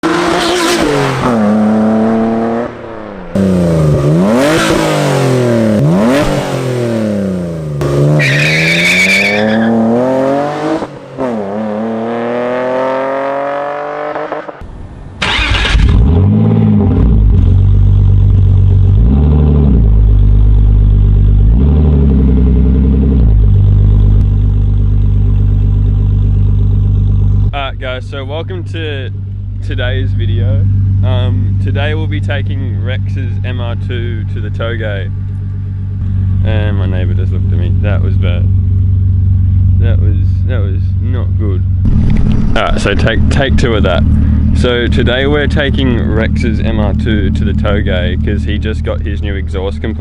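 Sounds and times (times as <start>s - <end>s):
car engine revving: 0.0s - 50.0s.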